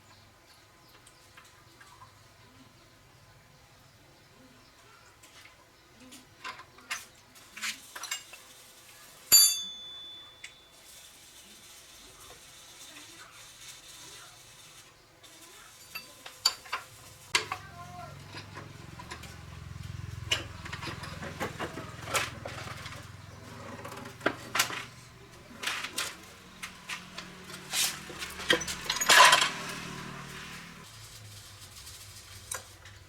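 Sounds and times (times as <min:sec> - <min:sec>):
metal tools clinking: 0:09.3 - 0:10.8, 0:15.8 - 0:17.7, 0:20.3 - 0:30.8
scraping rasp: 0:20.7 - 0:32.9.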